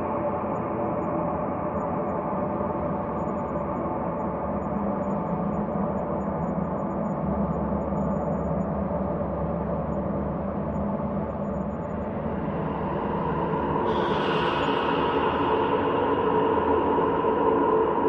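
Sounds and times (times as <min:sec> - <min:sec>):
ambient drone: 0:09.0 - 0:18.0.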